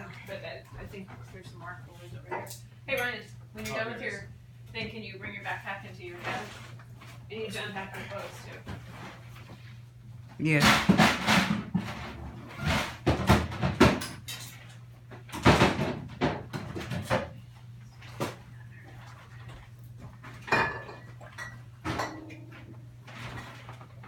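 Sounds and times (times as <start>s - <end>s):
cupboard doors knocking and clattering: 12.7s - 14.1s, 15.3s - 17.3s.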